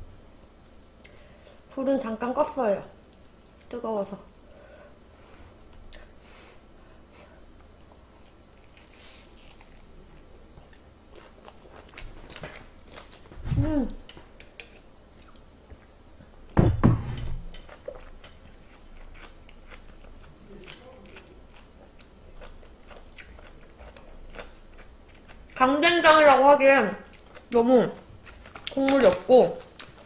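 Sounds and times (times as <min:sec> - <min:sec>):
person chewing food: 0:07.6 - 0:16.6, 0:17.4 - 0:25.6, 0:27.1 - 0:28.8, 0:29.6 - 0:30.0
short hummed vocal sound: 0:13.3 - 0:14.2.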